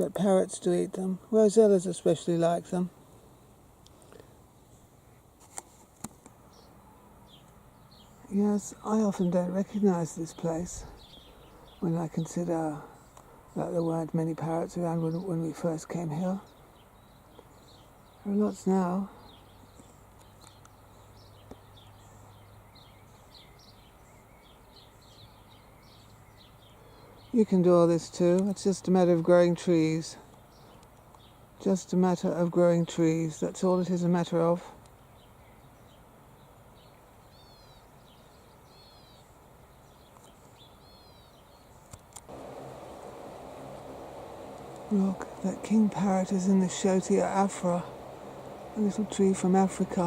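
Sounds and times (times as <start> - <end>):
faint background hiss: 0.0 - 50.0
small birds chirping: 6.1 - 50.0
bird calling: 42.3 - 50.0
low steady hum: 42.3 - 50.0.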